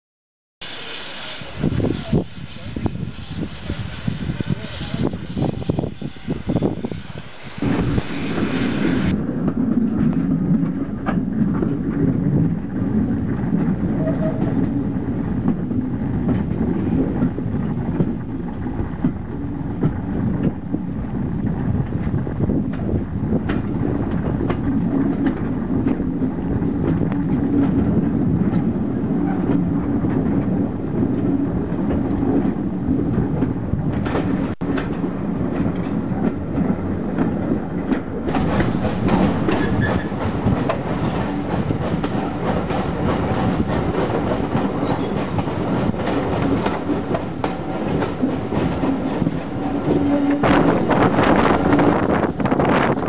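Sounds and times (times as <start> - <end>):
train rumble: 0.6 - 53.0
wheels clicking over rail joints: 21.7 - 53.0.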